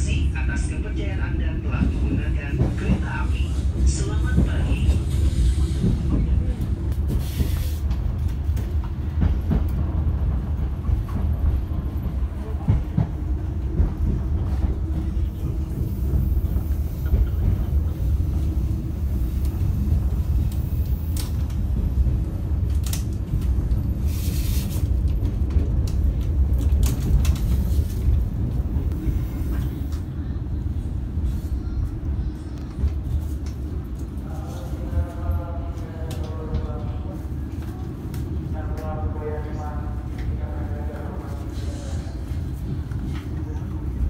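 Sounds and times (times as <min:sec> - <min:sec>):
train running rumble: 0:00.0 - 0:44.0.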